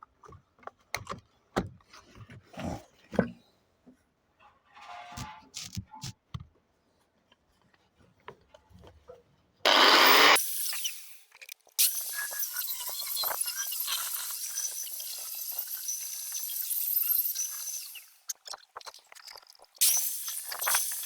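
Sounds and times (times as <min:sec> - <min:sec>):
angle grinder cutting: 0:09.7 - 0:18.4, 0:19.8 - 0:21.0.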